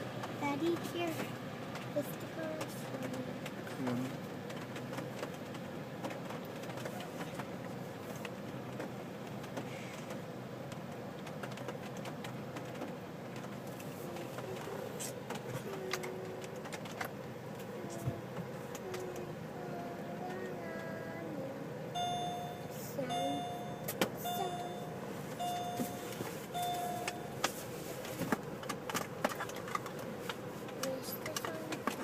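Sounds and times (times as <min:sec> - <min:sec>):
car cabin rumble and hiss: 0:00.0 - 0:32.0
small clicks and taps: 0:27.0 - 0:32.0.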